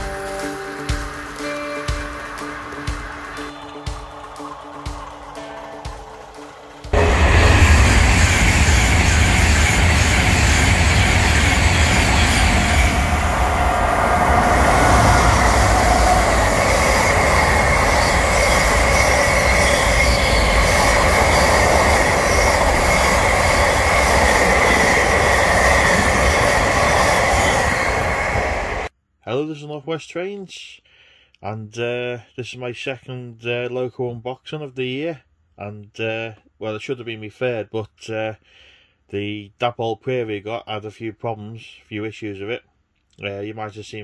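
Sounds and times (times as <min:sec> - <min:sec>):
freight train rumbling past: 0:00.2 - 0:28.9
high wheel squeal: 0:07.0 - 0:28.9.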